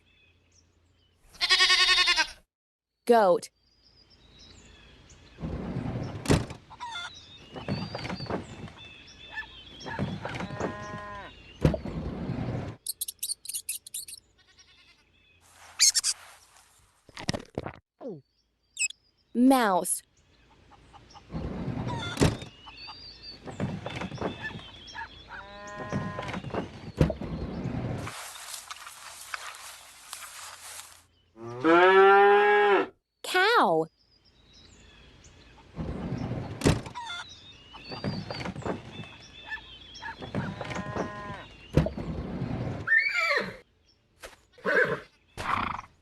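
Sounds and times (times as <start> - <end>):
goat bleat: 1.4 - 2.4, 14.4 - 15.0
mouse squeaking: 12.8 - 14.2, 15.8 - 16.2.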